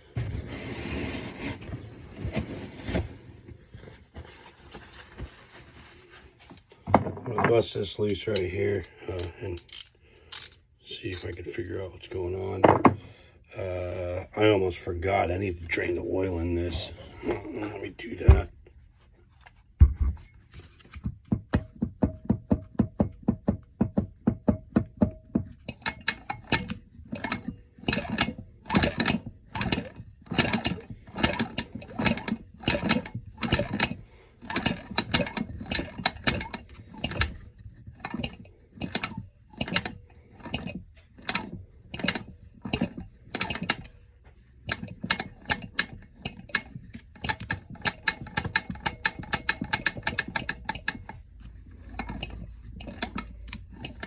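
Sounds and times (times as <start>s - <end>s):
ratchet wrench clicking: 9.2s - 11.4s.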